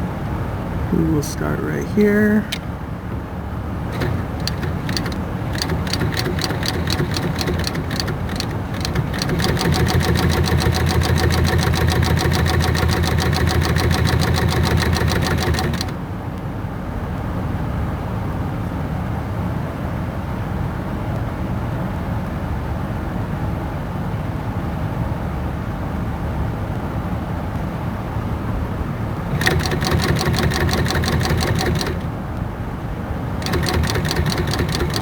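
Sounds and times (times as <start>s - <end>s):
sewing machine stitching leather: 3.9s - 16.0s, 29.3s - 32.2s, 33.4s - 35.0s.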